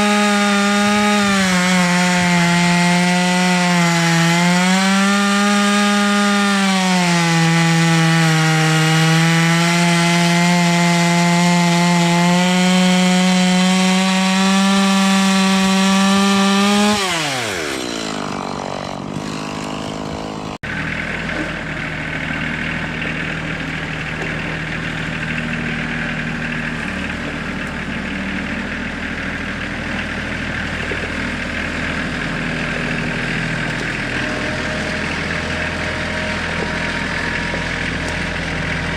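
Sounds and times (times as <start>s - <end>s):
chainsaw cutting at high revs: 0.0s - 38.9s
low engine hum: 20.1s - 38.9s.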